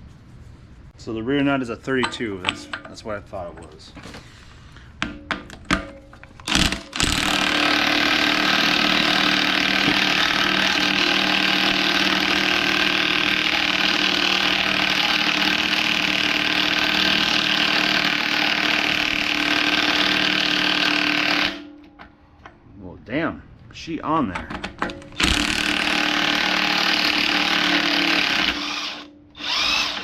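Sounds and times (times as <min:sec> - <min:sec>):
impact wrench hammering: 0:05.0 - 0:22.0, 0:24.8 - 0:30.0.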